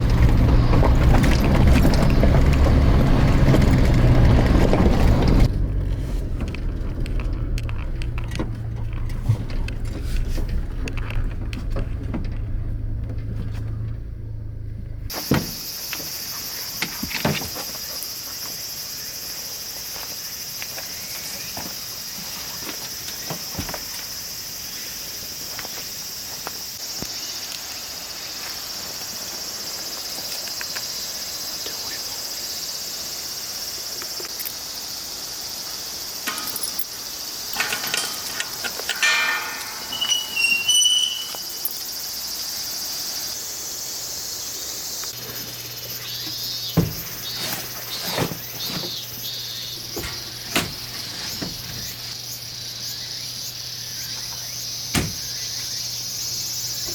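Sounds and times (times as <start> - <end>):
handling knocks and rustling: 0.0 - 14.0, 15.1 - 18.6, 20.7 - 24.3, 36.1 - 42.0, 45.0 - 52.2
insect chorus: 0.0 - 14.0, 15.1 - 56.9.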